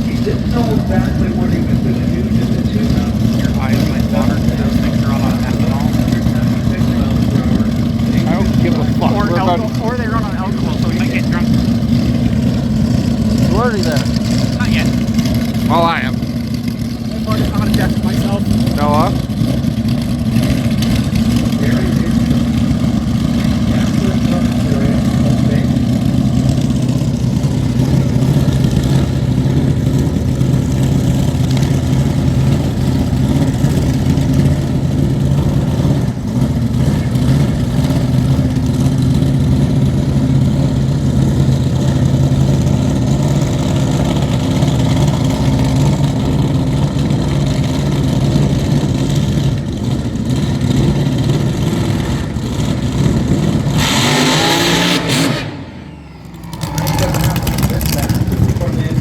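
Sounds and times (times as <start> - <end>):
race car engine idling and revving: 0.0 - 59.0.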